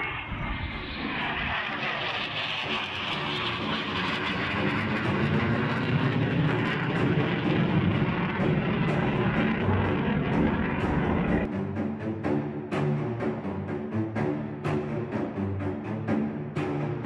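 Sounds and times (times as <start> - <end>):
jet engine roar: 0.0 - 11.5.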